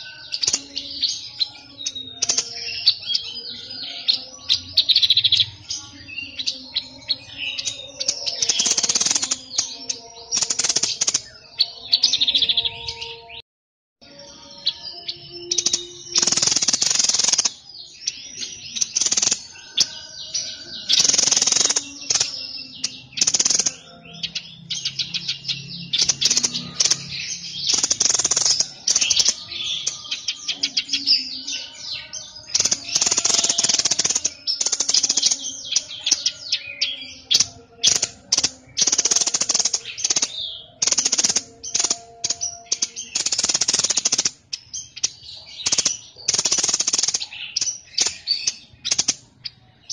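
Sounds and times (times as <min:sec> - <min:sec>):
songbird chattering: 0:14.6 - 0:49.9.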